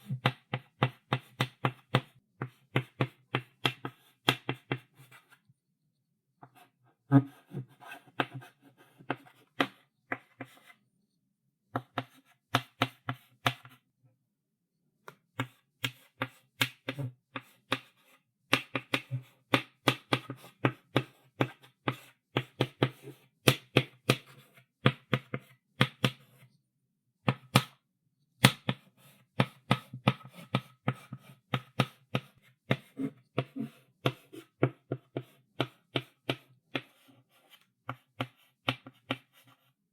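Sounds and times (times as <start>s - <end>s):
chalk writing on blackboard: 7.5s - 10.7s, 11.8s - 13.8s, 19.8s - 24.4s, 28.7s - 39.7s.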